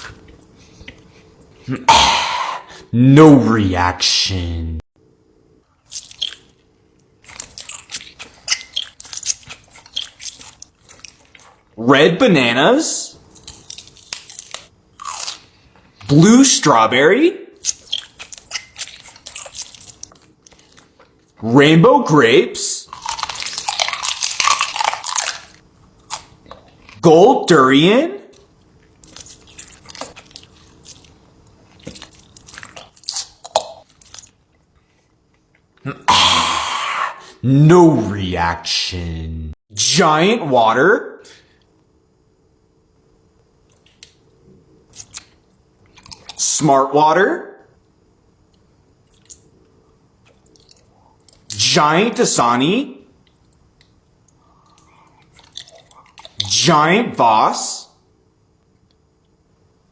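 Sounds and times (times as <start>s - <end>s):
crunchy chewing: 5.8s - 11.7s, 13.2s - 16.1s, 17.6s - 21.4s, 22.9s - 27.0s, 28.4s - 36.1s, 43.6s - 46.4s, 48.5s - 51.5s, 53.2s - 56.5s.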